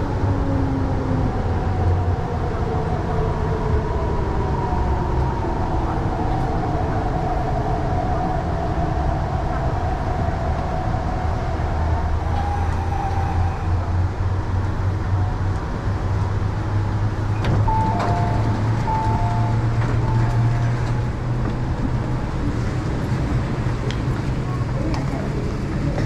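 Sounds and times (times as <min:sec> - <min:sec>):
train rumble and hum: 0:00.0 - 0:26.0
faint steady tones: 0:17.6 - 0:21.0
alternating two-note tones: 0:17.7 - 0:20.9.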